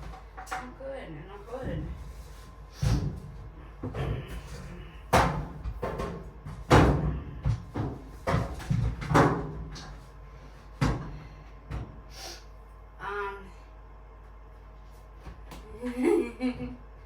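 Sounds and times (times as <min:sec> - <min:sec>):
knocks and bangs against appliance: 0:02.8 - 0:10.0, 0:10.8 - 0:12.0.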